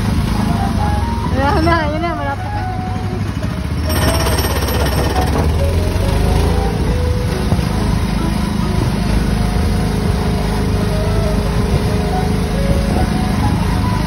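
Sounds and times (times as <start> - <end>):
small gasoline engine running: 2.8 - 14.0.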